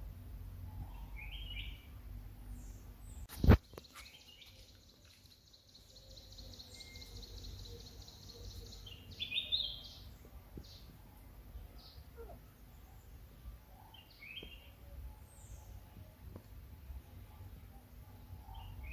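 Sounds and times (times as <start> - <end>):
bird chirps: 2.5 - 11.0, 11.7 - 15.9, 17.6 - 18.9.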